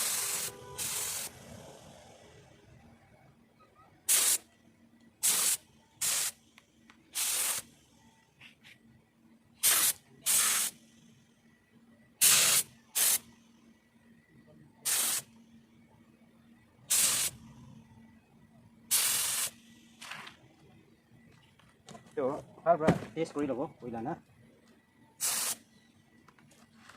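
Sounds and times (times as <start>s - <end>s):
air spray gun hissing bursts: 0.0s - 1.9s, 4.1s - 4.5s, 5.2s - 6.4s, 7.1s - 7.8s, 9.6s - 10.9s, 12.2s - 13.3s, 14.8s - 15.4s, 16.9s - 17.4s, 18.9s - 20.0s, 25.2s - 25.6s.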